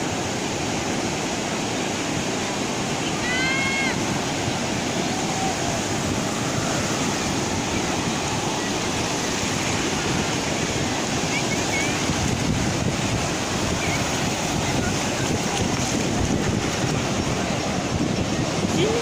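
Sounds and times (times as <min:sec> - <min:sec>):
ocean waves breaking on beach: 0:00.0 - 0:19.0.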